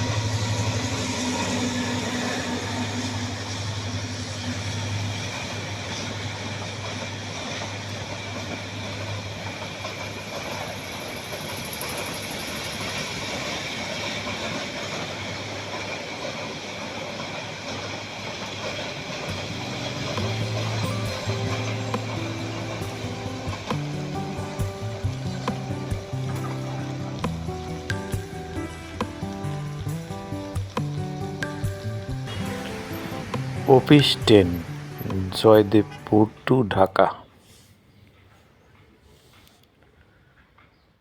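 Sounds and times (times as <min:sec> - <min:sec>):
low engine hum: 0:00.0 - 0:09.3, 0:19.3 - 0:36.3
train rumbling: 0:00.0 - 0:39.5.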